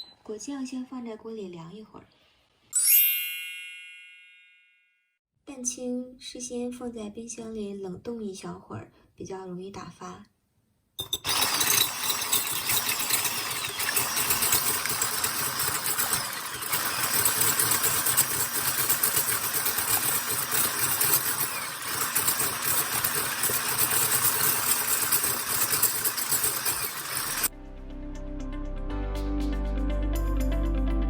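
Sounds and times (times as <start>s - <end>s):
electric hand mixer whipping: 11.0s - 27.5s.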